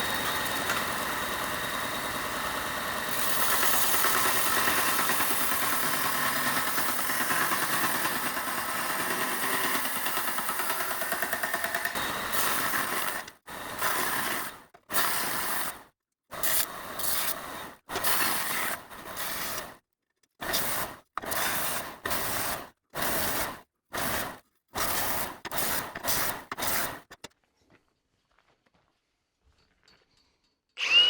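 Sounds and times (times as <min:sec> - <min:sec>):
power tool harsh bursts: 0:00.0 - 0:15.8, 0:30.8 - 0:31.0.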